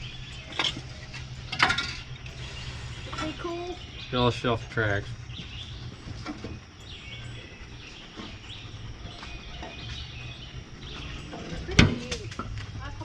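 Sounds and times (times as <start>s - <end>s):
low outdoor rumble: 0.0s - 13.0s
faint bird chirps: 2.1s - 12.2s.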